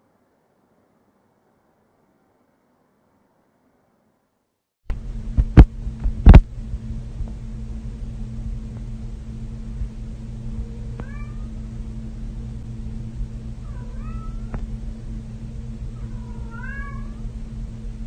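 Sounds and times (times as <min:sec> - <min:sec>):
steady low hum: 0:04.9 - 0:18.0.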